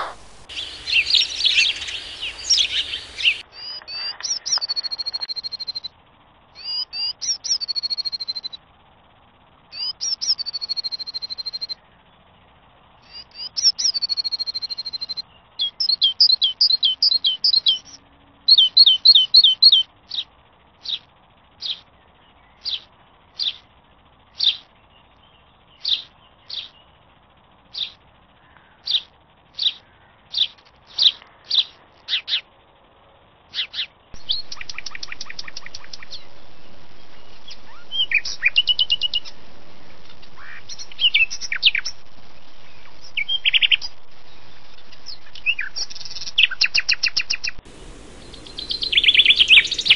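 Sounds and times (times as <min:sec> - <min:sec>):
songbird singing: 0:00.0 - 0:32.7, 0:33.3 - 0:49.9.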